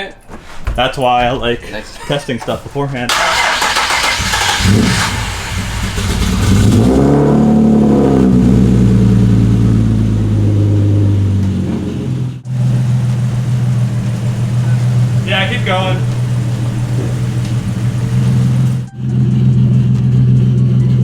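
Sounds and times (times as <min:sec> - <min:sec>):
car engine revving and idling: 0:03.1 - 0:21.0.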